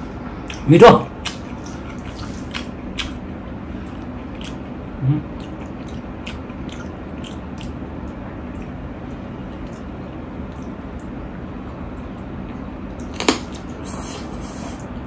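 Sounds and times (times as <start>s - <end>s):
person chewing food: 0.4s - 11.2s
low vocal sound: 5.0s - 5.4s.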